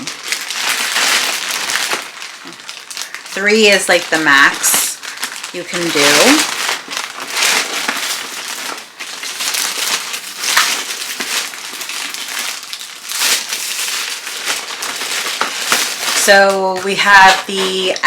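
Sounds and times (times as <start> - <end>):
packaging crinkling: 0.0 - 18.0.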